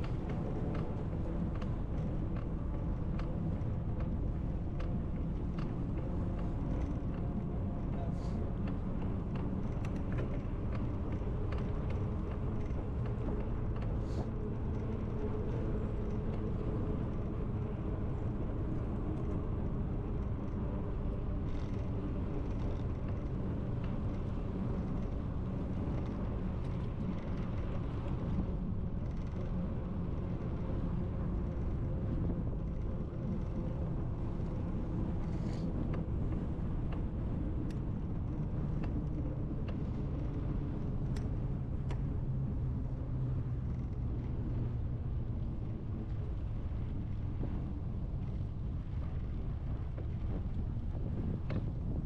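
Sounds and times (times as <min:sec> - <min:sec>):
bicycle road and wind noise: 0:00.0 - 0:52.0
faint light clicks: 0:41.0 - 0:42.1.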